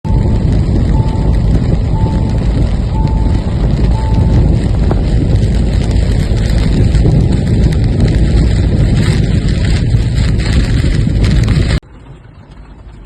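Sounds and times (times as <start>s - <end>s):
low rumbling: 0.0s - 13.0s
short electronic beeps: 0.1s - 4.6s.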